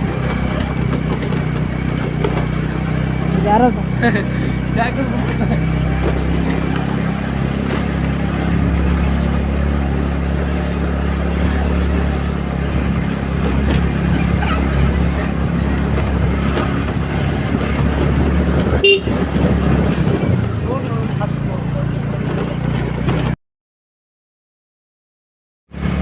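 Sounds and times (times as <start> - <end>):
scooter engine running: 0.0 - 23.4
wind on microphone: 17.3 - 20.6.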